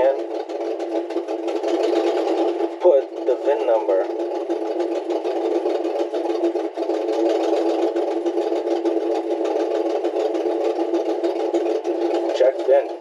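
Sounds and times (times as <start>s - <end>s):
pickup engine idling with clatter: 0.0s - 13.0s.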